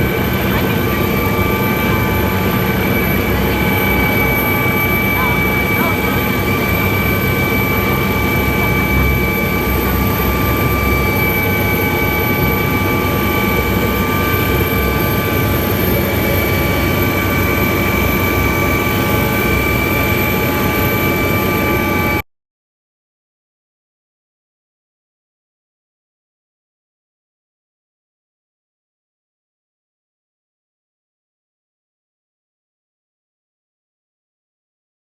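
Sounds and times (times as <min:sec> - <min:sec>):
helicopter engine and rotor: 0:00.0 - 0:22.2.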